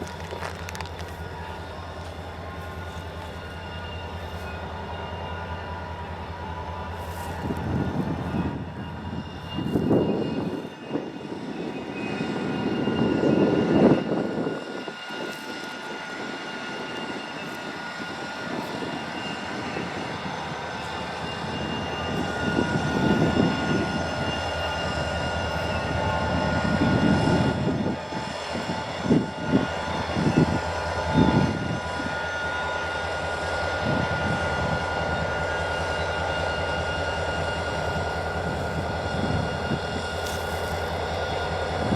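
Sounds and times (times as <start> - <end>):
drone propellers whining: 0.0 - 41.9
wind on microphone: 7.2 - 32.1, 33.8 - 35.2, 37.8 - 40.7.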